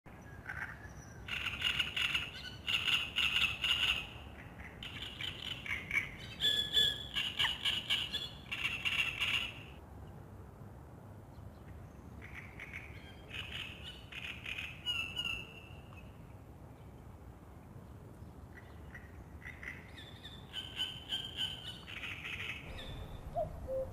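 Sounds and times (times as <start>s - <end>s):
songbirds singing trilled phrases: 18.8s - 23.9s.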